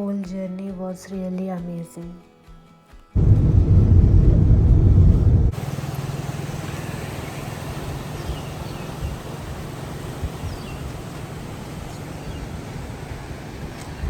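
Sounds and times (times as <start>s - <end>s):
low rumble: 3.2s - 6.1s
road noise: 3.2s - 14.0s
vehicle engine running: 3.2s - 14.0s
faint bird chirps: 7.2s - 12.6s.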